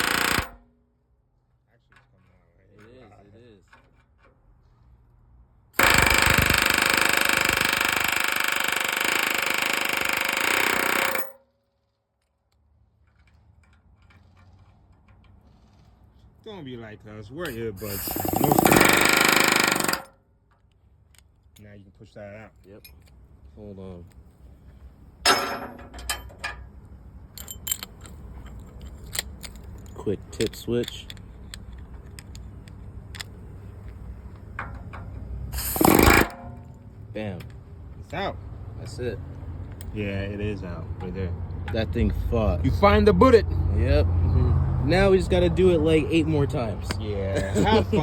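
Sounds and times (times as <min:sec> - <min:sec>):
pneumatic air hammer hammering: 0:00.0 - 0:00.7, 0:05.8 - 0:11.4, 0:17.5 - 0:20.1, 0:25.3 - 0:26.3, 0:34.6 - 0:36.8
small metallic clinks: 0:22.5 - 0:23.2, 0:25.3 - 0:26.7, 0:27.3 - 0:36.7
hammer striking steel: 0:25.3 - 0:26.6.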